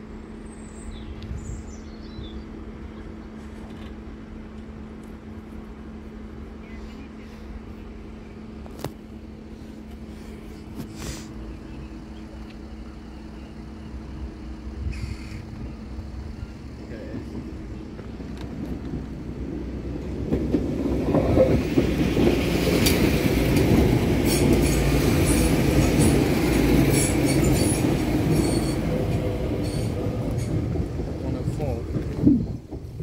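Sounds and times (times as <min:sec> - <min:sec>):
diesel train rumbling past: 0:00.0 - 0:33.0
train wheels clicking on rails: 0:16.9 - 0:33.0.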